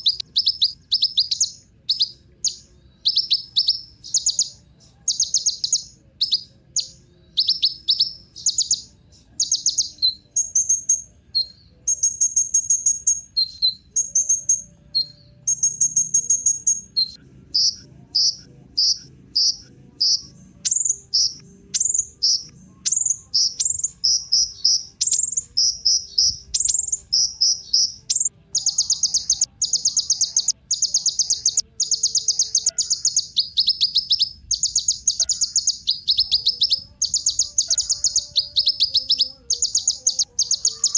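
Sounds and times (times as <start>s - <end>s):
bird singing buzzy trills: 0.0s - 40.9s.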